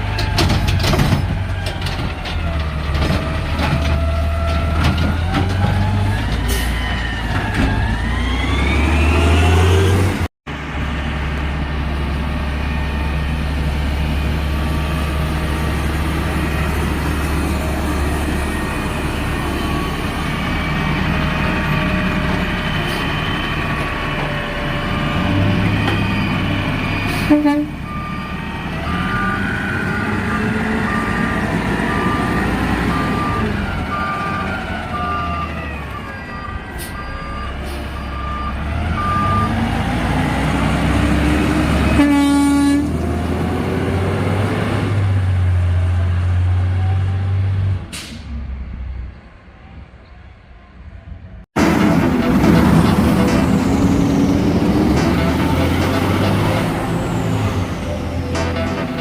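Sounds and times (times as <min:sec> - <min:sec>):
reversing alarm beeps: 0:25.0 - 0:39.7
garbage truck engine running: 0:51.6 - 0:59.0.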